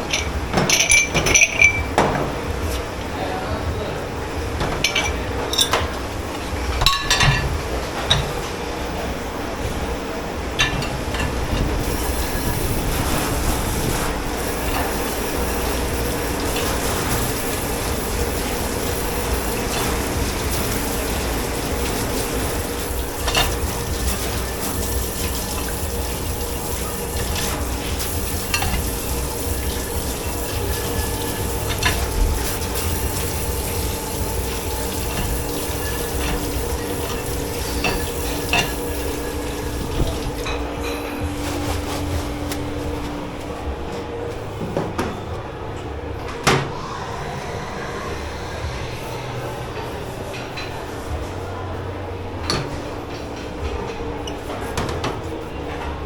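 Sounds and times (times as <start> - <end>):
dishes clinking: 0.0 - 2.5, 4.6 - 6.0, 6.8 - 8.5, 10.6 - 13.4, 14.4 - 43.1
steady hum: 0.0 - 56.0
tap water running: 10.6 - 43.1.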